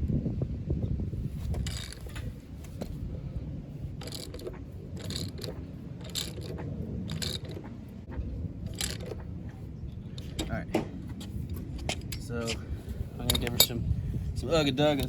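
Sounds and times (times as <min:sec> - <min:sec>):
hand ratchet scraping strokes: 0:01.4 - 0:03.0, 0:03.9 - 0:07.7, 0:08.7 - 0:09.2.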